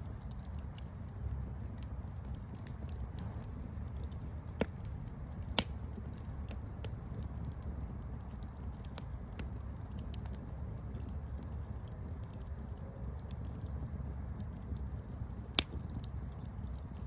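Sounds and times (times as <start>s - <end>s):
campfire rumbling and crackling: 0.0s - 17.0s
loud fire pops: 0.2s - 12.6s, 14.1s - 17.0s.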